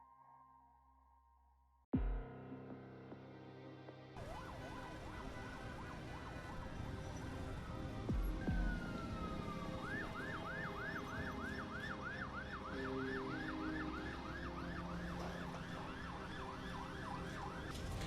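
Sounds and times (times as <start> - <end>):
faint emergency siren: 4.2 - 18.0.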